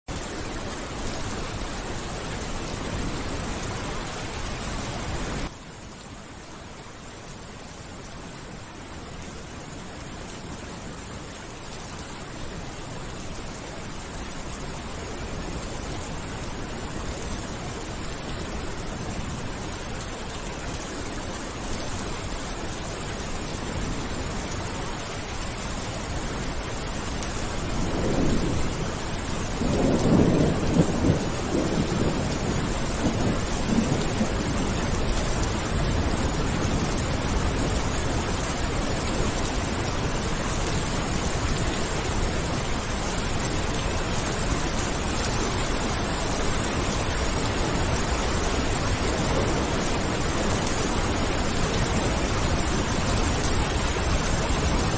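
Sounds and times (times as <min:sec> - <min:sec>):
heavy rain: 0:00.0 - 0:54.9
thunder rumbling: 0:27.6 - 0:54.9.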